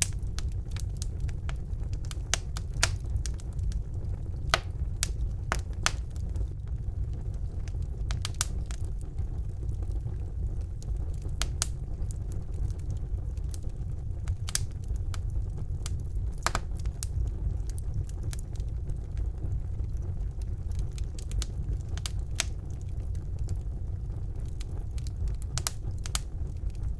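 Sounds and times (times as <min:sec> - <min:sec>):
wood fire crackling and popping: 0:00.0 - 0:26.9.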